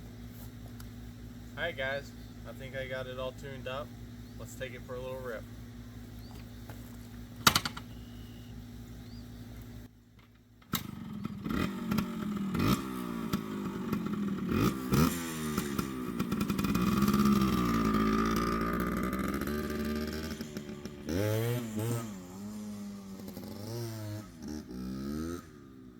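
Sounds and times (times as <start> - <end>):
two-stroke motorcycle engine: 10.6 - 25.9.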